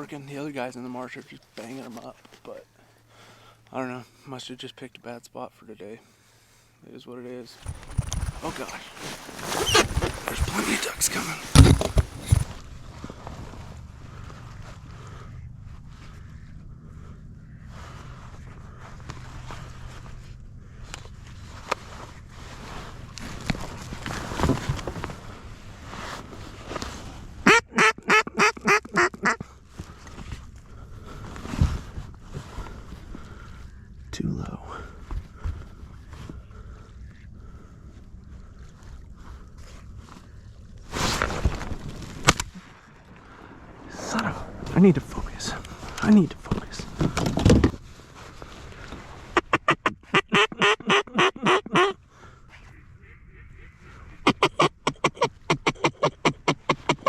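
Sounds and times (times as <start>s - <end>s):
duck quacking: 27.4s - 29.4s, 49.4s - 52.0s, 52.6s - 57.0s.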